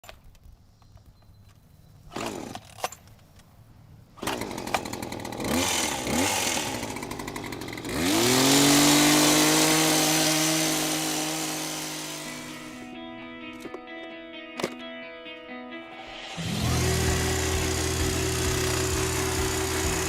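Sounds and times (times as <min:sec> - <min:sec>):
battery chainsaw motor whining: 0:04.2 - 0:12.9, 0:16.2 - 0:20.0.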